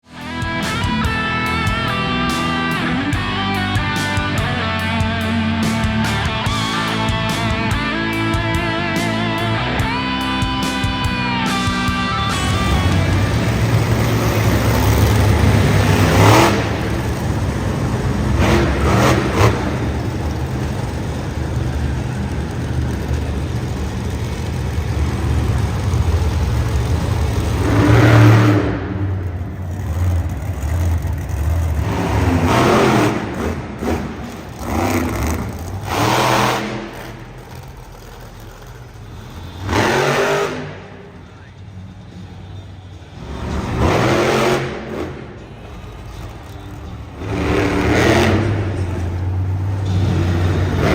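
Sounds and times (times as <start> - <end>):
monster truck engine revving: 0.0 - 50.9.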